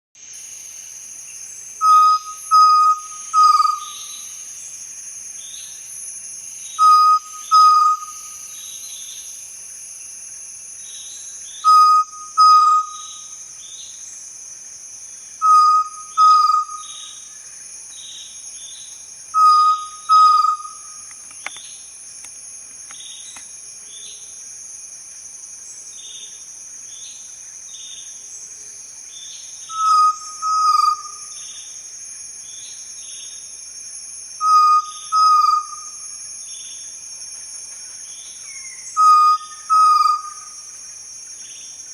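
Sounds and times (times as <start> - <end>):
quail whistled calls: 1.8 - 4.0, 6.8 - 8.2, 11.6 - 13.1, 15.4 - 16.9, 19.4 - 20.8, 29.7 - 31.2, 34.4 - 35.8, 39.0 - 40.5.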